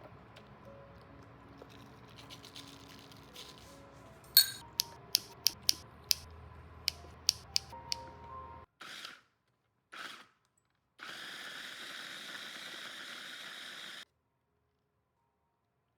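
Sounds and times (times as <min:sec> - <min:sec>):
sharp click with metallic ring: 0:04.4 - 0:06.2
rapid sharp clicks: 0:04.8 - 0:06.2, 0:06.9 - 0:07.7.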